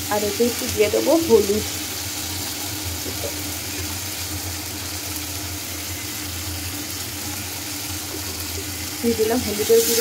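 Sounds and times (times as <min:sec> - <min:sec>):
paste sizzling in oil: 0:00.0 - 0:10.0.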